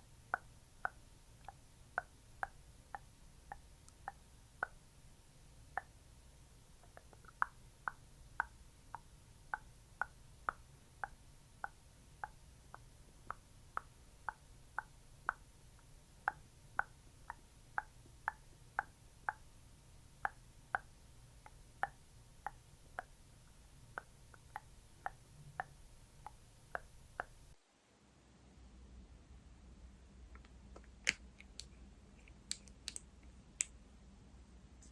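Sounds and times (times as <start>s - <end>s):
skincare product patted on: 30.4s - 33.1s.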